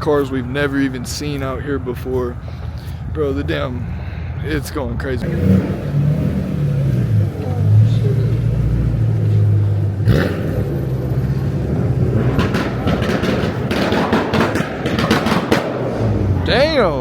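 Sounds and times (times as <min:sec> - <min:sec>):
car engines running: 0:00.0 - 0:17.0
sharp cracks: 0:11.6 - 0:16.4.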